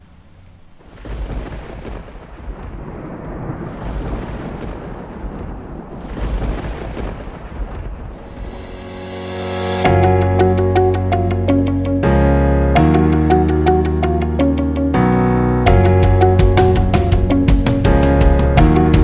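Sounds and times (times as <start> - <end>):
rain hiss: 0.0 - 9.9
rolling thunder: 0.1 - 10.2, 15.7 - 19.0.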